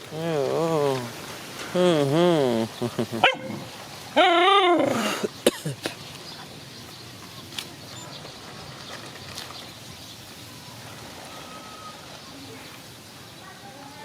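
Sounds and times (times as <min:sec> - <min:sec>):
low background hiss: 0:00.0 - 0:14.0
dog whining: 0:03.2 - 0:05.1.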